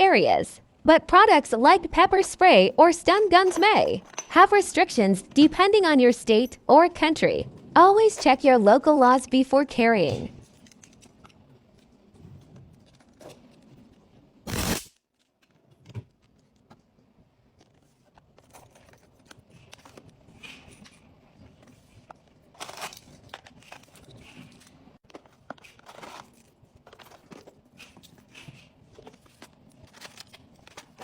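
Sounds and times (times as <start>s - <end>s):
packaging rustling and crinkling: 17.5s - 31.0s.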